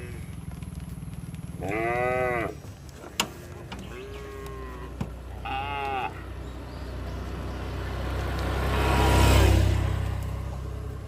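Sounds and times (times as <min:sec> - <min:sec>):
cow mooing: 0:01.6 - 0:02.6, 0:03.9 - 0:06.3.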